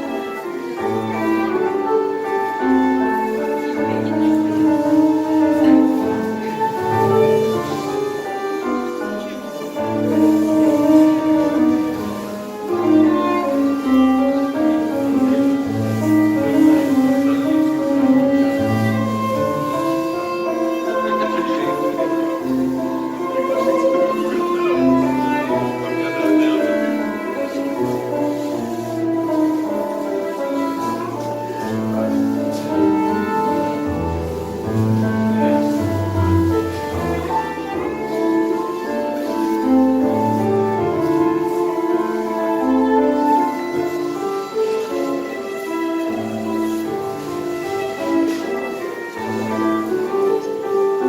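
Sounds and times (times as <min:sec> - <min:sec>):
bowed string melody: 0:00.0 - 0:51.0
piano: 0:00.0 - 0:51.0
tango band playing: 0:00.0 - 0:51.0.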